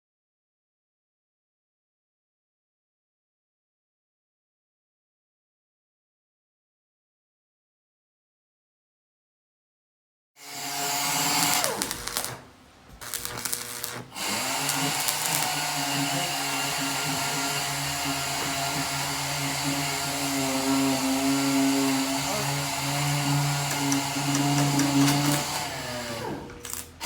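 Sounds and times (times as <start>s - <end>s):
power tool motor running: 10.4s - 27.0s.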